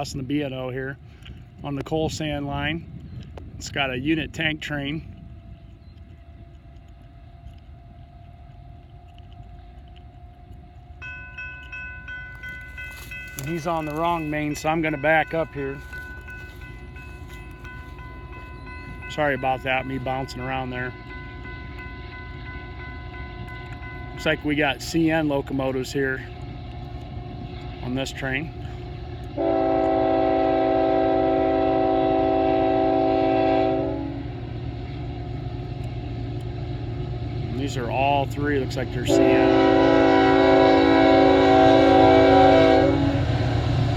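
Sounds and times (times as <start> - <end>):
diesel locomotive rumble: 0.0 - 43.9
ringing bell chime: 11.0 - 24.4
locomotive air horn chord: 29.4 - 34.4, 39.0 - 43.6.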